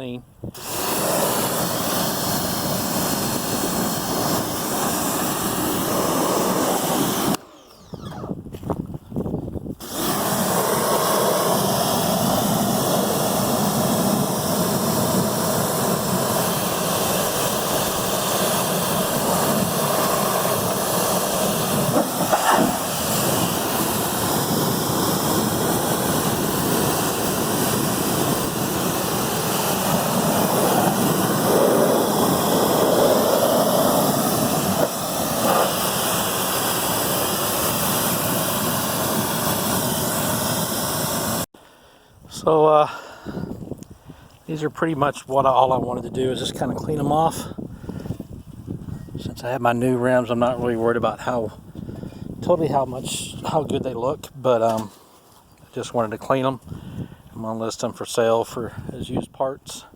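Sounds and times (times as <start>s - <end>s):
pressure washer spraying hiss: 0.6s - 7.5s, 9.8s - 41.5s.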